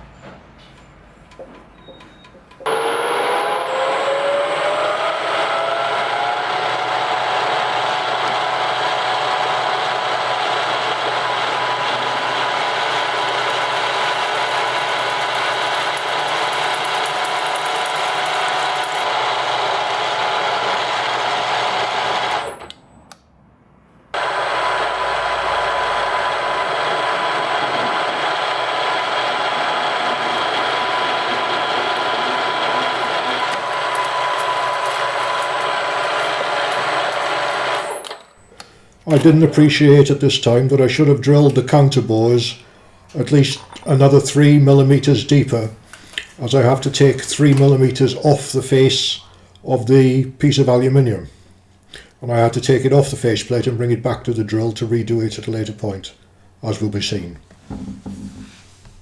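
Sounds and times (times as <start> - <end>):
drill motor drilling metal: 2.6 - 22.8, 24.2 - 39.6.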